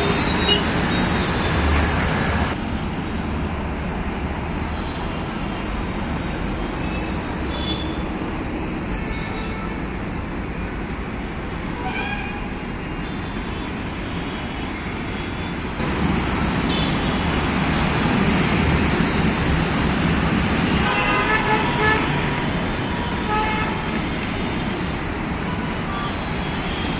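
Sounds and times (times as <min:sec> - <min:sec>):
highway traffic: 0:00.0 - 0:26.9
car horn toots: 0:20.8 - 0:22.2.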